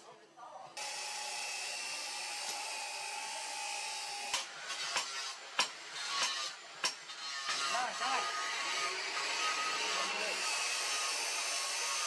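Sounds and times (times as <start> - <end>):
electric power tool running: 0.8 - 6.2.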